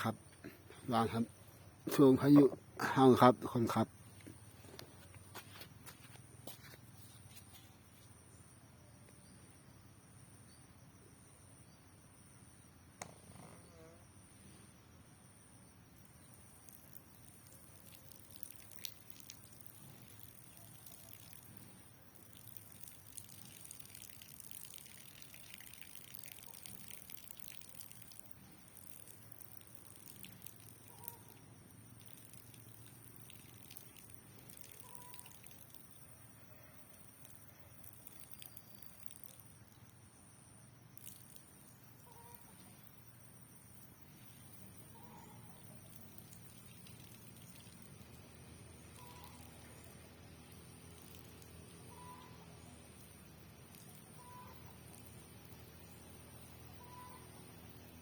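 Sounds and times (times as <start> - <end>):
rainwater dripping and trickling: 16.4 - 36.2, 36.9 - 39.6, 45.8 - 52.0, 52.8 - 56.6.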